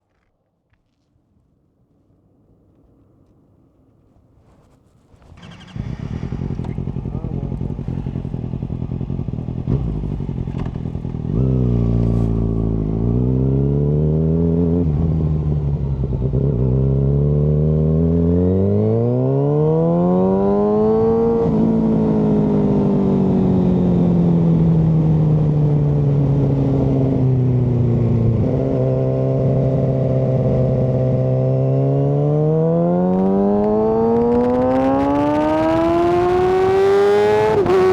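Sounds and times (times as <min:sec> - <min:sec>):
motorcycle engine revving: 0:05.2 - 0:37.9.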